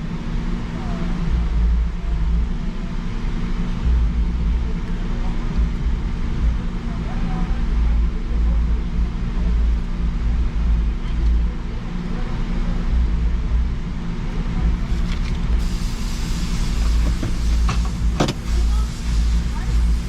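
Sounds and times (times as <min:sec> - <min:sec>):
engine and road rumble: 0:00.0 - 0:20.0
low hum: 0:00.0 - 0:20.0
high hiss: 0:15.6 - 0:20.0.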